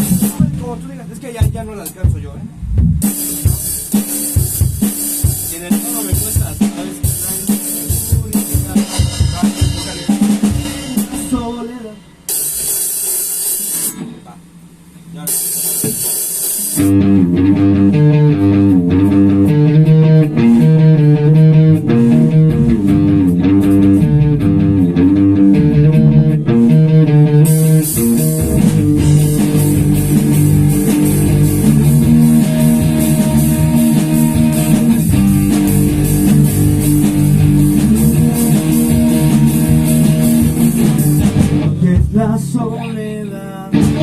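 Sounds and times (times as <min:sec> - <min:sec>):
bass guitar: 0:00.0 - 0:11.8, 0:16.8 - 0:44.0
rock band playing: 0:00.0 - 0:14.2, 0:15.2 - 0:42.6, 0:43.7 - 0:44.0
electric guitar riff: 0:16.8 - 0:42.1, 0:43.7 - 0:44.0.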